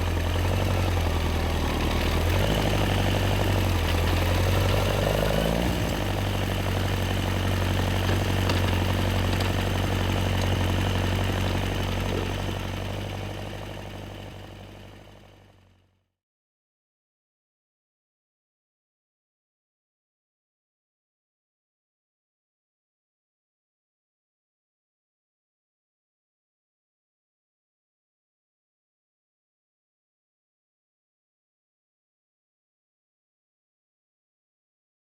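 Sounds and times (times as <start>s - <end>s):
motorcycle engine idling: 0.0s - 15.8s.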